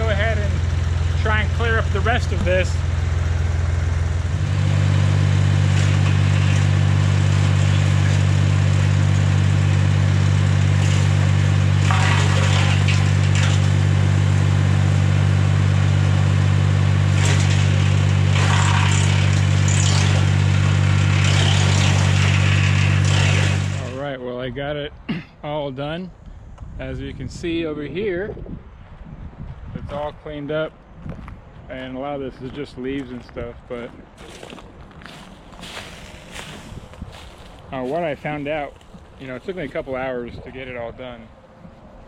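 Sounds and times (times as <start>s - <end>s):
wood chipper chipping branches: 0.0s - 24.0s, 34.2s - 39.4s
tractor engine: 0.0s - 24.1s, 35.1s - 40.1s.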